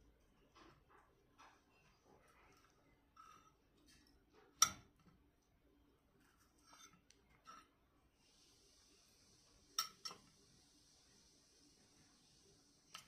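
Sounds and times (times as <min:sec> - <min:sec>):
faint steady hiss: 0:00.0 - 0:13.0
cutlery scraping on a plate: 0:00.7 - 0:05.0, 0:06.2 - 0:07.8, 0:09.7 - 0:10.4.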